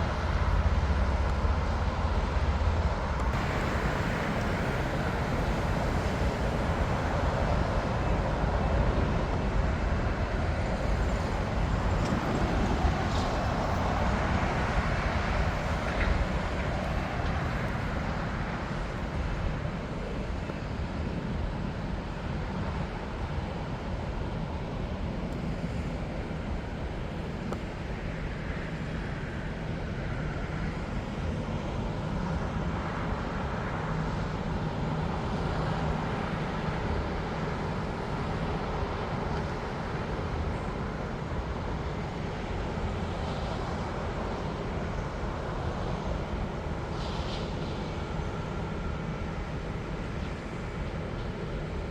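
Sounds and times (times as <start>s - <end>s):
jet engines rumbling: 0.0s - 51.9s.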